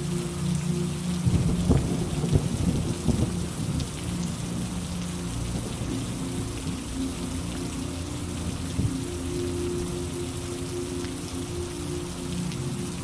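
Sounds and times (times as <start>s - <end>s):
heavy rain: 0.0s - 13.0s
thunder clap rumbling: 1.3s - 3.9s.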